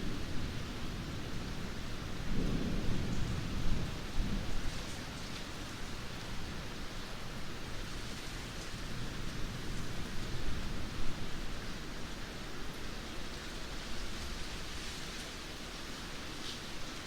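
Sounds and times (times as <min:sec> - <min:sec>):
low rumble of thunder: 0:00.0 - 0:11.4
heavy rain falling: 0:00.0 - 0:17.0.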